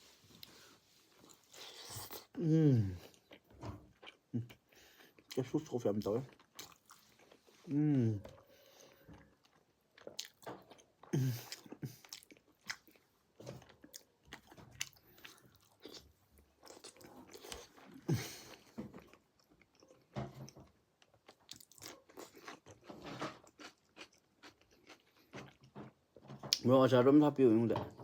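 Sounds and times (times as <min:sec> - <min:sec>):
person biting and chewing: 0:01.3 - 0:02.3, 0:06.3 - 0:08.0, 0:13.6 - 0:18.7, 0:21.3 - 0:25.6.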